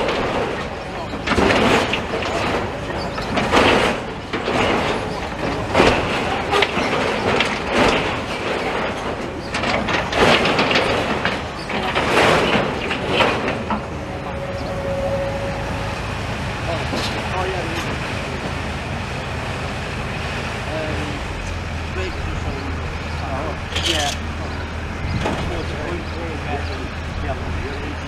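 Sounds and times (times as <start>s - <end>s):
low engine rumble: 0.0s - 28.0s
rubble and metal crashing: 0.0s - 28.0s
short squeal: 14.2s - 16.1s.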